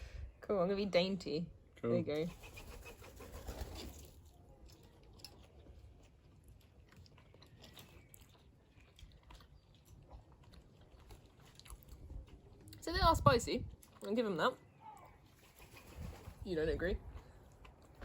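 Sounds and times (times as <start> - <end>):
people chewing: 4.2 - 12.8, 13.7 - 15.4, 17.1 - 18.0.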